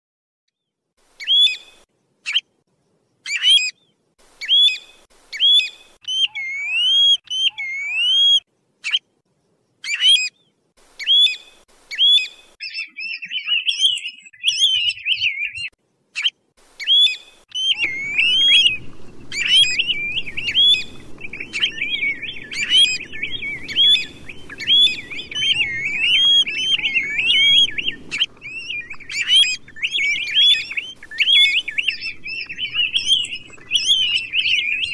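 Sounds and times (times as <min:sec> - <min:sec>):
songbird whistled calls: 0:01.2 - 0:02.4, 0:04.4 - 0:09.0, 0:11.0 - 0:34.9
bird chattering: 0:19.4 - 0:34.9.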